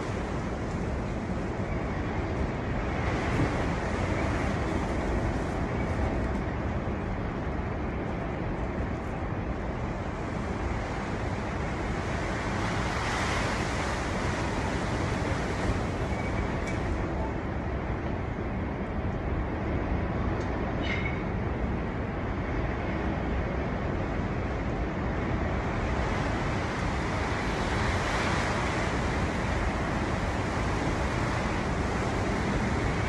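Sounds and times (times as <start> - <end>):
storm wind blowing hard: 0.0 - 33.0.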